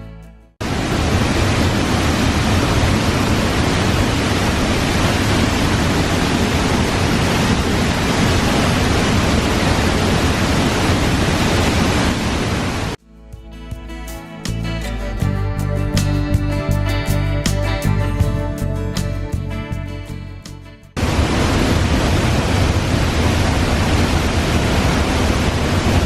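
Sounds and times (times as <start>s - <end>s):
waterfall roaring: 0.6s - 13.0s, 21.0s - 26.0s.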